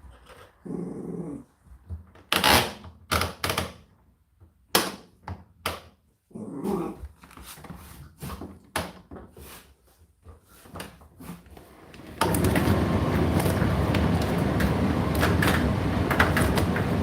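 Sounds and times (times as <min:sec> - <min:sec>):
tumble dryer running: 0:11.6 - 0:17.0
dryer being handled clicking: 0:11.7 - 0:17.0.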